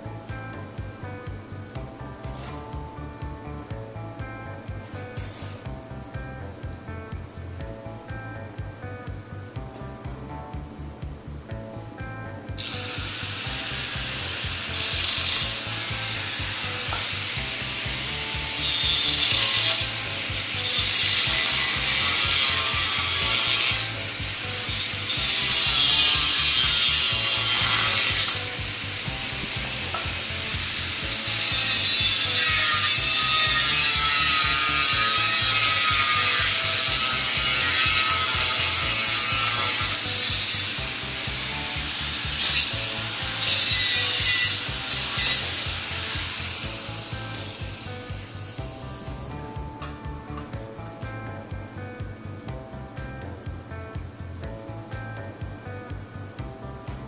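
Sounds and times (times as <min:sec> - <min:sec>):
background music: 0:00.0 - 0:57.0
angle grinder grinding steel: 0:04.8 - 0:05.8, 0:12.6 - 0:49.7.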